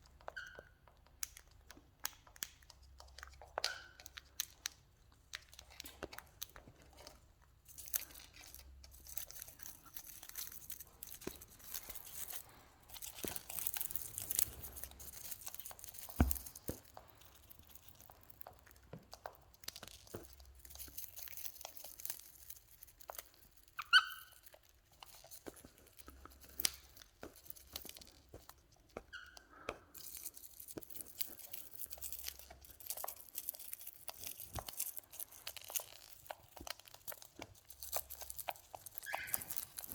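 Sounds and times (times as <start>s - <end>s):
rustling: 2.8s - 39.9s
bird squeak: 23.8s - 24.4s, 39.0s - 39.6s.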